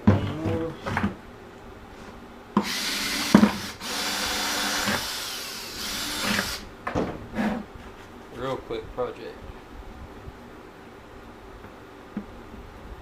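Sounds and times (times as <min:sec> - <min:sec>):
power drill boring plastic: 0:02.6 - 0:06.7.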